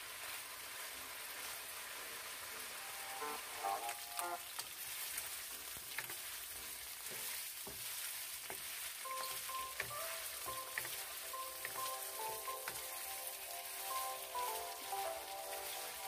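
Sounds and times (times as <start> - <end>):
chicken sizzling in a pan: 0.0 - 16.0
spatula clicking against pan: 9.8 - 12.0.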